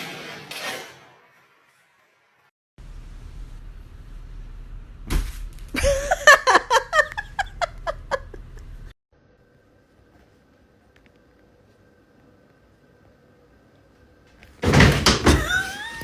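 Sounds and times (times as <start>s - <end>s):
person laughing: 5.8s - 8.7s.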